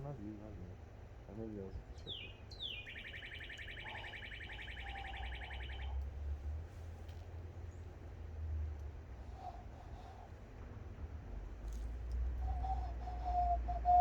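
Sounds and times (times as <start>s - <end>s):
high whistled trill: 12.6s - 14.0s.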